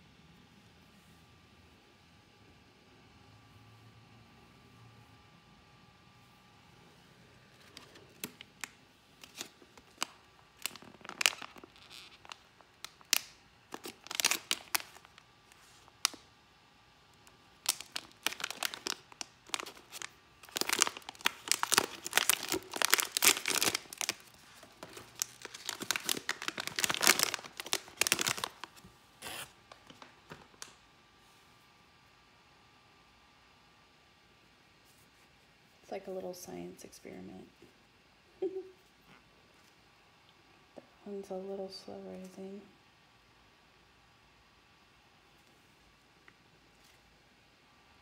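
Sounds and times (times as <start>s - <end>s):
plastic bag crinkling and tearing: 7.5s - 16.3s, 17.2s - 30.8s.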